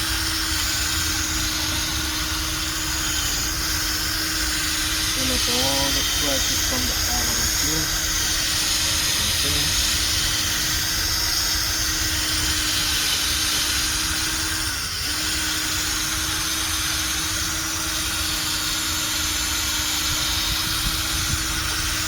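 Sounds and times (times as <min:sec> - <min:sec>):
electric drill sanding plastic: 0:00.0 - 0:22.0.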